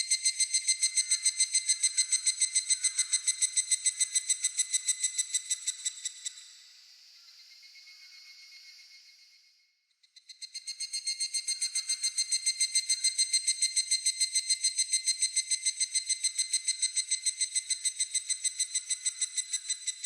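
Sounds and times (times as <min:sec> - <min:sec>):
cicada calling: 0:00.1 - 0:06.4.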